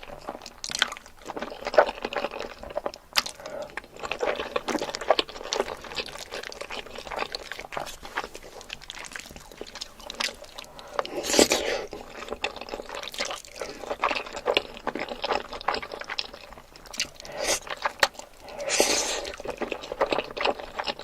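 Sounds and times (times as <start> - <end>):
chewing: 0.0 - 21.0
noodle slurping: 10.8 - 13.0, 16.9 - 21.0.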